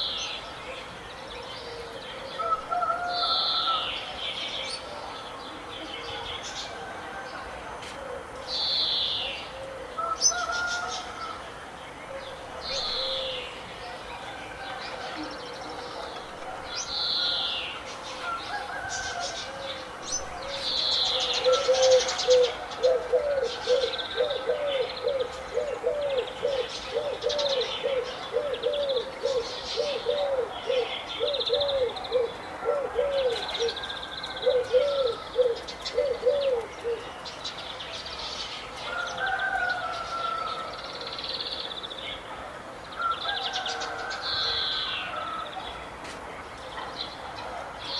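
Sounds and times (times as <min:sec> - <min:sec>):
birds chirping: 0:08.5 - 0:42.3.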